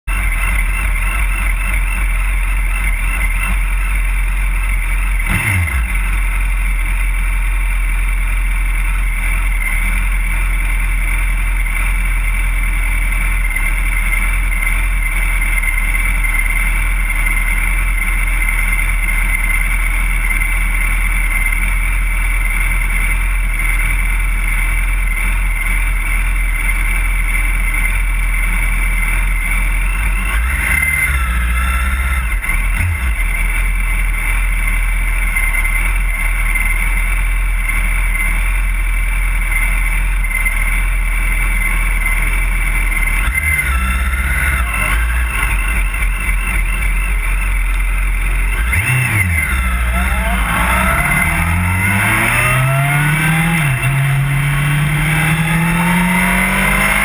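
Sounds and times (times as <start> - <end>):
motorcycle engines idling: 0.0 - 57.0.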